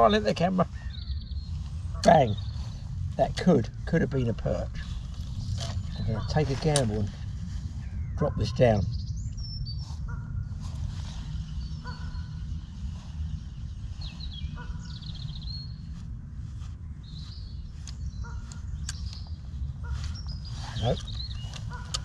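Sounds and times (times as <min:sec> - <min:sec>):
low bird calls: 0:00.0 - 0:22.0
low steady rumble: 0:00.0 - 0:22.0.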